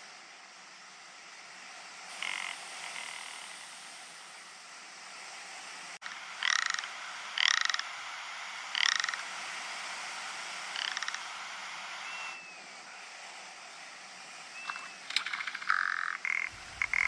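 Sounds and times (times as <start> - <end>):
steady background hiss: 0.0 - 17.0
ptarmigan rattling calls: 2.1 - 3.7, 6.1 - 9.6, 10.4 - 12.4, 14.6 - 17.0.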